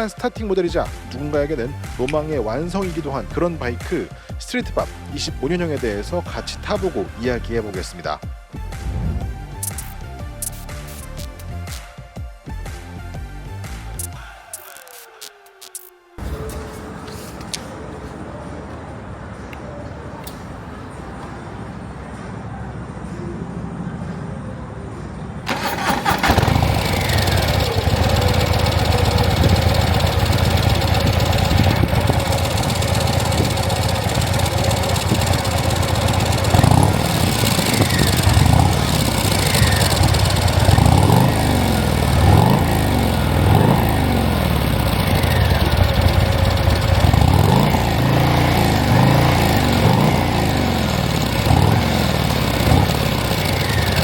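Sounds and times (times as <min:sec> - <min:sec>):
motorcycle engine revving: 0:25.5 - 0:54.0.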